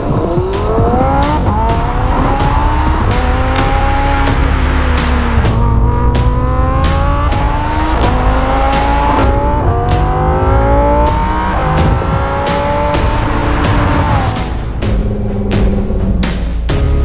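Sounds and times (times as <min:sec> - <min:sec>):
sports car engine accelerating hard: 0:00.0 - 0:17.0.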